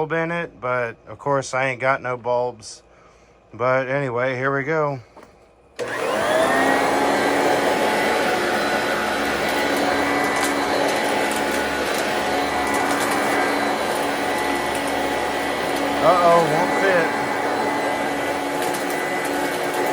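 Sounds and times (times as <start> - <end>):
vacuum cleaner motor running: 5.8 - 19.9.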